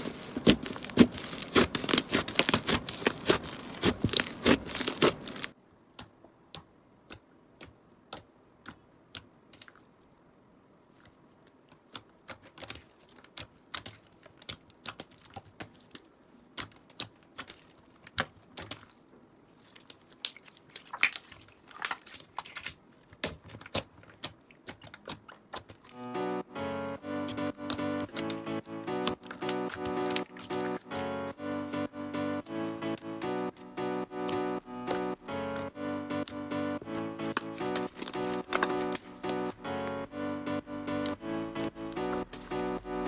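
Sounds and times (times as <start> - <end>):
slime clicking and popping: 0.0 - 5.5, 27.3 - 31.1, 34.2 - 39.6
music: 25.9 - 43.0.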